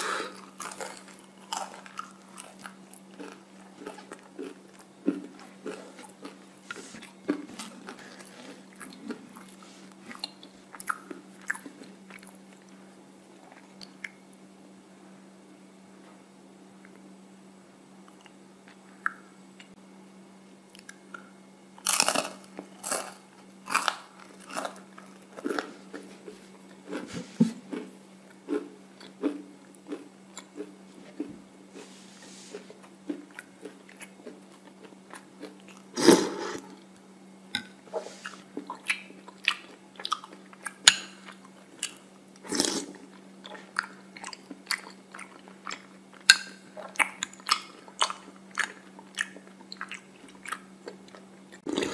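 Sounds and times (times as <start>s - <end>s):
crunching waffle cone: 0.0s - 12.6s, 21.8s - 27.1s
faint low hum: 0.0s - 51.9s.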